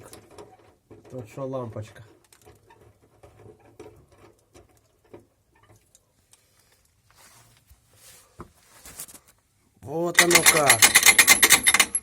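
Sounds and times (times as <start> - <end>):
handling clicks and rustles: 10.1 - 12.0.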